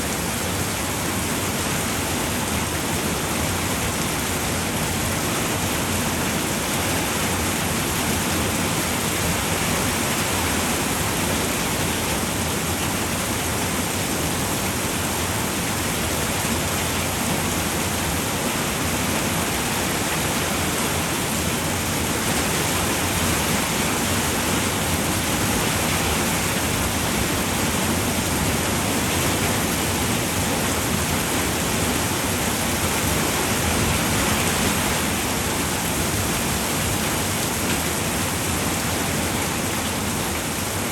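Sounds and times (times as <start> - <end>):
rain falling on a roof: 0.0 - 40.9.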